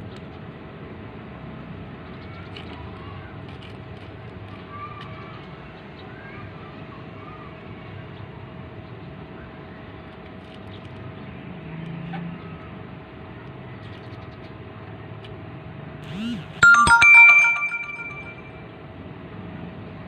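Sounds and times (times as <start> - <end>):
bright chime: 16.6 - 18.5.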